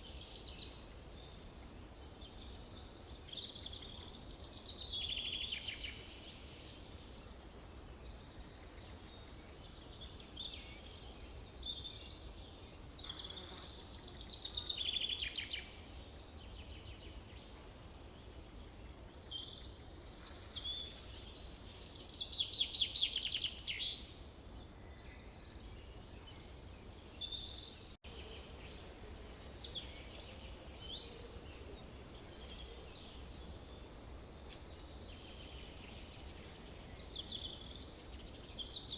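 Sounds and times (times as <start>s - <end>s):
birds singing: 18.2s - 38.9s.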